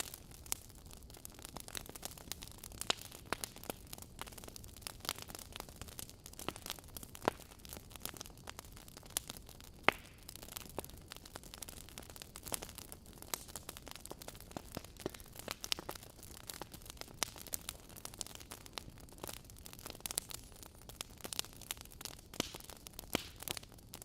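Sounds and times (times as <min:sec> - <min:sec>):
low hiss of fire: 0:00.0 - 0:24.0
wood fire crackling and popping: 0:00.0 - 0:24.0.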